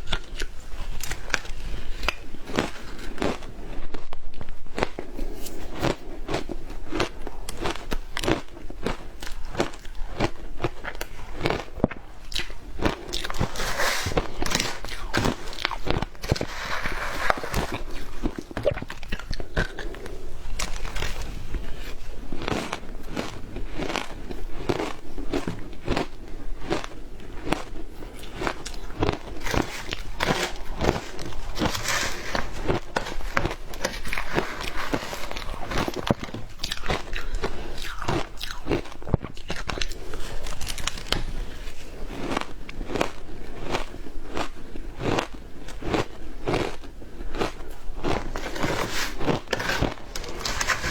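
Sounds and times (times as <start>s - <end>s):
person crunching frozen ice: 0.0s - 50.9s
frozen treat being crunched: 28.2s - 43.8s.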